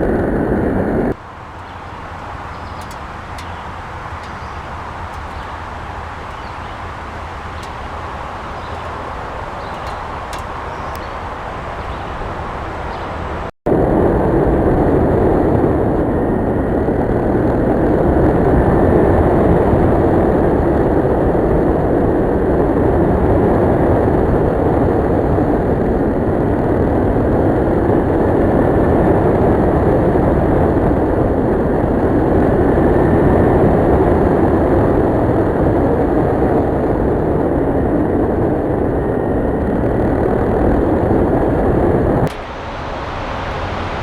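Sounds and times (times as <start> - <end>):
wind rushing on microphone: 0.0 - 44.0
motorcycle engine running: 1.2 - 13.4.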